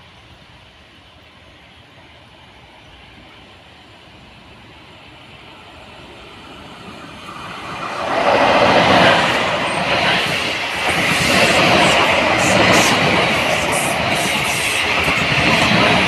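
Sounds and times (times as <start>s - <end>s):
train wheels rushing on rails: 0.0s - 16.0s.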